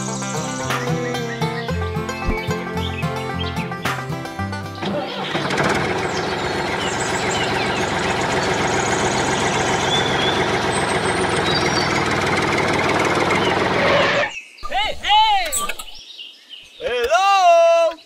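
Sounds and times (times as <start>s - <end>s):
music: 0.0s - 6.3s
tractor engine running: 1.8s - 14.2s.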